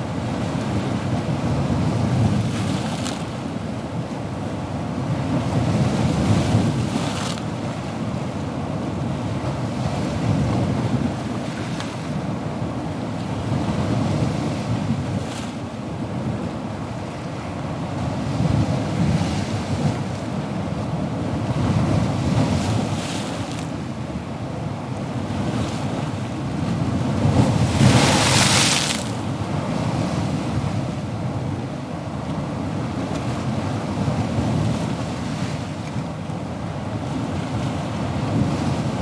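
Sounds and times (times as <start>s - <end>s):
ocean waves breaking: 27.0s - 30.3s, 37.0s - 39.0s.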